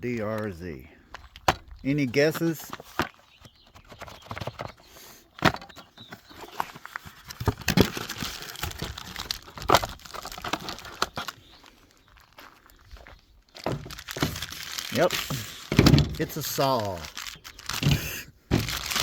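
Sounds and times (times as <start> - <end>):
plastic packaging crinkling: 6.4 - 19.0.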